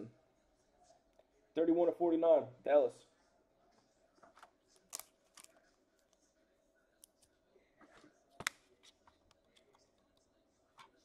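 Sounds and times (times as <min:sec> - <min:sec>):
trading cards rustling and clicking: 0:04.2 - 0:06.2.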